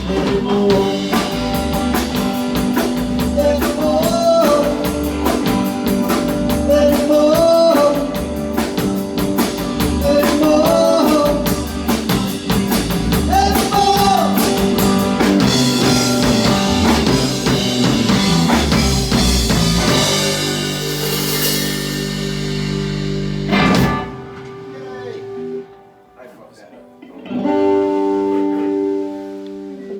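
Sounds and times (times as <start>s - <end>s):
rock band playing: 0.0s - 26.2s, 26.9s - 29.9s
guitar chord ringing: 19.9s - 29.9s.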